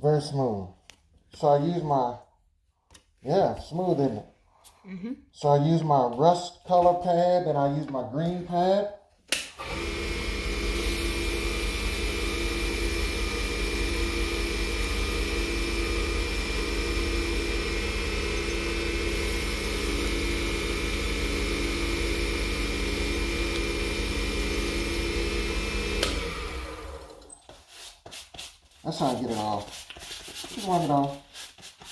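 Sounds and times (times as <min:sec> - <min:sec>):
lathe motor running: 0:09.6 - 0:27.3.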